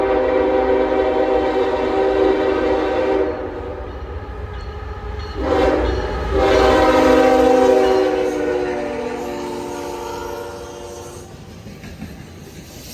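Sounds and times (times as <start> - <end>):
locomotive horn blasts: 0.0 - 3.8, 5.4 - 11.3
train rumble: 0.0 - 12.9.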